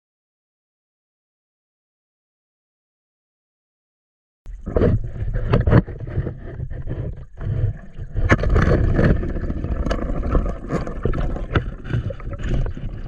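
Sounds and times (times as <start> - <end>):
water rushing and churning: 4.5 - 13.0.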